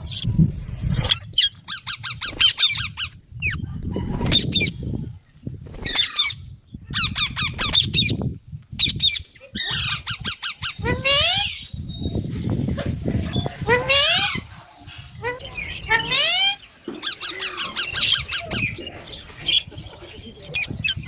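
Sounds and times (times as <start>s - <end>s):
parrot squawking: 9.5s - 11.7s, 13.6s - 18.8s.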